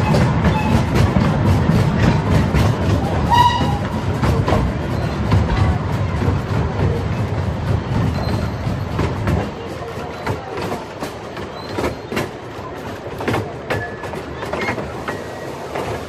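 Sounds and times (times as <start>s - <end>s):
railway carriage rumble: 0.0s - 16.0s
wheels clicking over rail joints: 0.0s - 16.0s.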